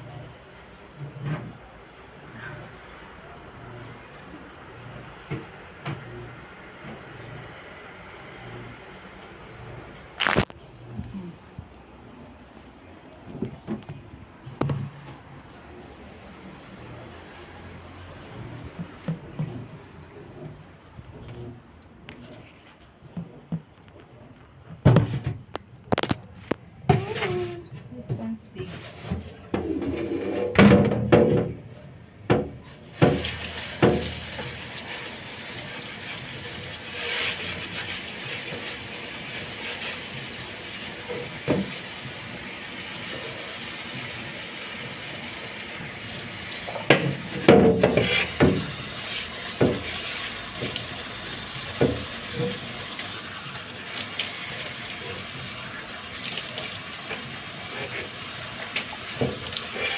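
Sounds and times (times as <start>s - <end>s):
tap water running into a sink: 32.4s - 59.9s.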